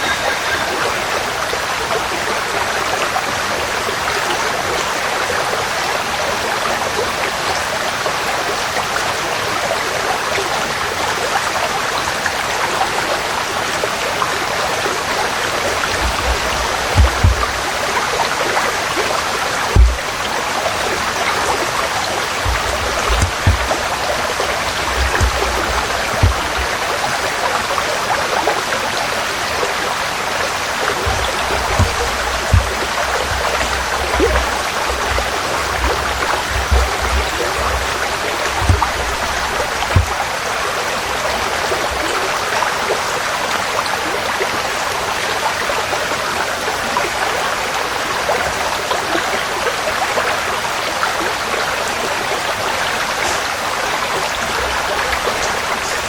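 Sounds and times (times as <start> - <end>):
stream running over stones: 0.0 - 56.0
low thumps: 15.8 - 18.0, 19.7 - 20.4, 22.3 - 27.0, 30.9 - 40.2.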